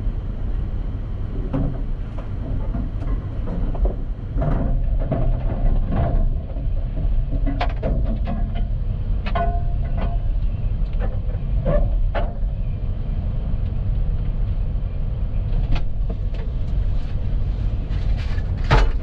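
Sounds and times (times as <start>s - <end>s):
wind buffeting microphone: 0.0s - 19.0s
sharp knocks and clatters: 18.1s - 19.0s.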